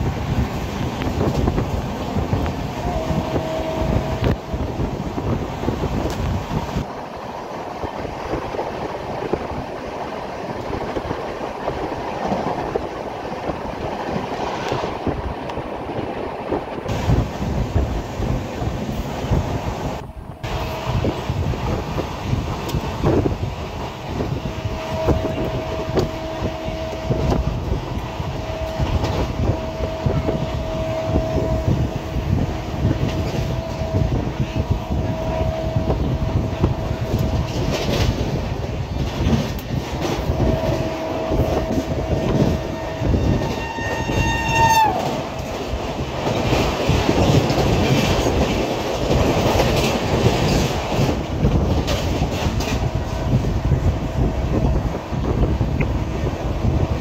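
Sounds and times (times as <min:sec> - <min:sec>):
train rumble: 0:00.0 - 0:57.0
train horn: 0:02.1 - 0:05.3, 0:24.2 - 0:38.3, 0:40.0 - 0:45.6
wheels clacking over rail joints: 0:36.6 - 0:53.8.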